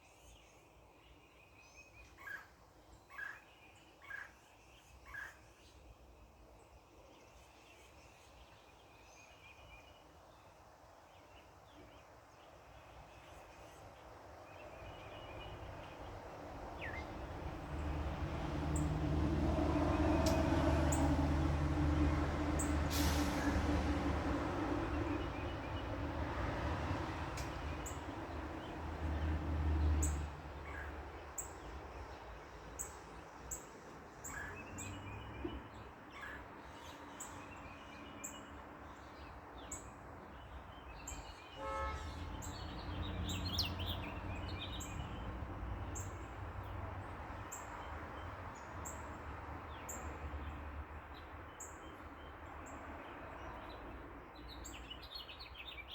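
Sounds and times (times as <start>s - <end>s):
vehicle rumbling past: 14.2s - 55.9s
birds chirping: 14.5s - 19.0s.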